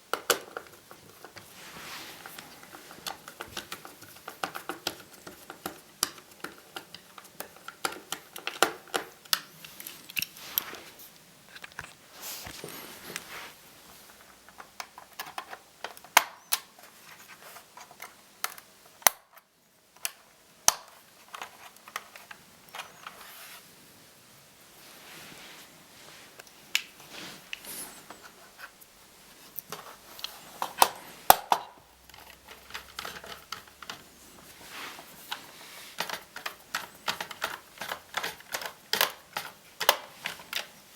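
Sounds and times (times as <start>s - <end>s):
screws and plastic parts rattling: 0.1s - 10.8s, 14.0s - 19.1s, 21.0s - 23.3s, 29.6s - 40.9s.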